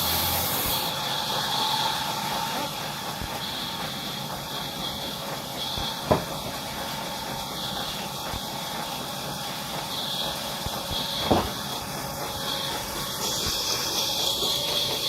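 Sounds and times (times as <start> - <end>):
wood saw machine hissing: 0.0 - 15.0
sharp knock: 6.1 - 6.3, 11.2 - 11.6.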